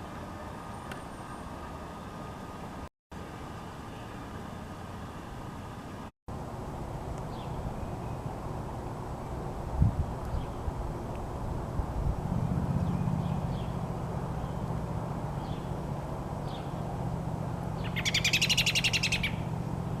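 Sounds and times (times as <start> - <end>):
steady low rumble: 6.4 - 18.0
robin chirping: 15.3 - 15.7, 17.8 - 19.5.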